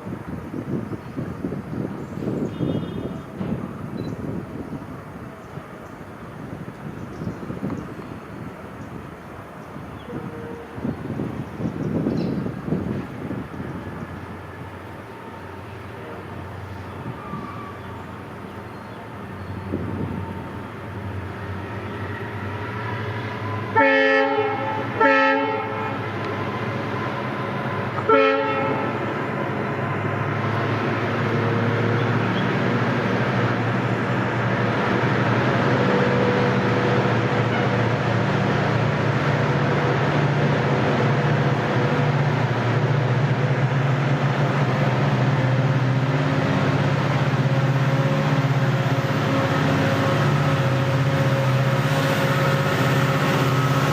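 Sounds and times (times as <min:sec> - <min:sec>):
train engine and running noise: 0:00.0 - 0:53.9
locomotive horn blasts: 0:02.5 - 0:03.3, 0:10.0 - 0:11.0, 0:15.5 - 0:17.8, 0:23.0 - 0:29.2, 0:35.8 - 0:38.0, 0:47.9 - 0:53.9.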